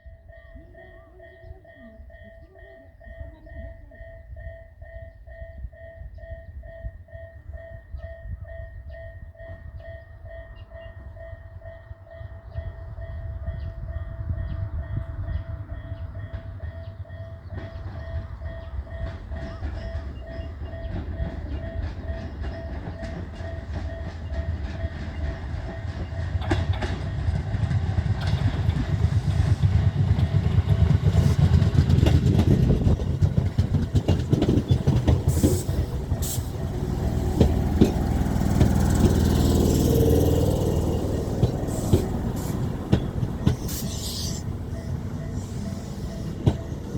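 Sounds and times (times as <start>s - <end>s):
train wheels clattering: 16.3s - 46.9s.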